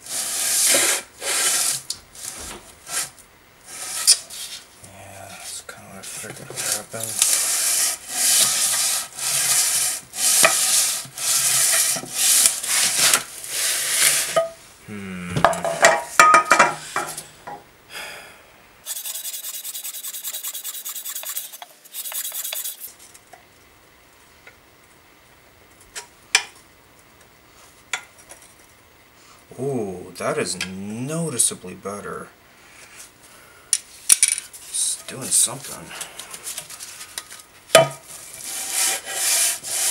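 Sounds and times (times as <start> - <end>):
metal rasping on sandpaper: 0.0 - 1.8, 3.7 - 4.6, 6.1 - 14.4, 18.8 - 22.9, 38.2 - 39.9
steady hiss: 0.0 - 24.5, 29.0 - 39.9.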